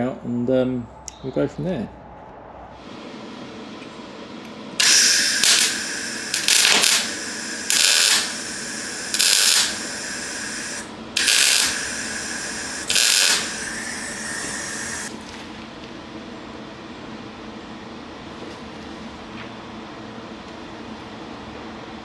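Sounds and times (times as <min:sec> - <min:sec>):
electric welder arc bursts: 0:04.8 - 0:15.2
welder hum: 0:04.8 - 0:15.2.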